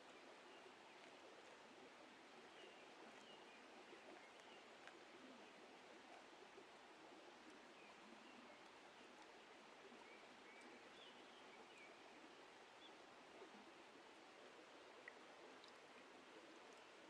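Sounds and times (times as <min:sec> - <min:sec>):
outdoor background hiss: 0:00.0 - 0:17.0
faint ticks: 0:03.0 - 0:05.4, 0:15.0 - 0:16.1.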